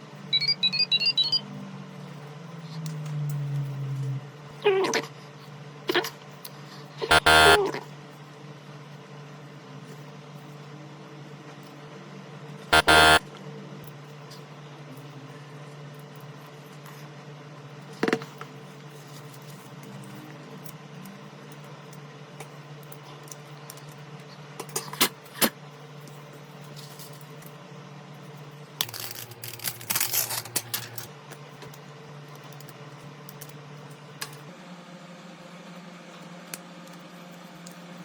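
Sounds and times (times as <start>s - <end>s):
steady hum: 6.7s - 7.8s, 12.6s - 13.4s.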